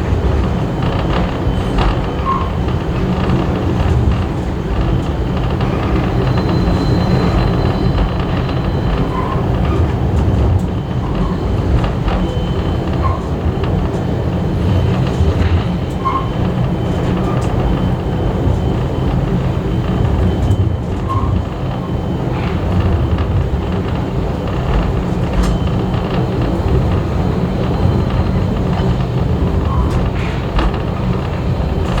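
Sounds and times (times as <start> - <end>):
railway carriage rumble: 0.0 - 32.0
small track clicks: 22.4 - 32.0.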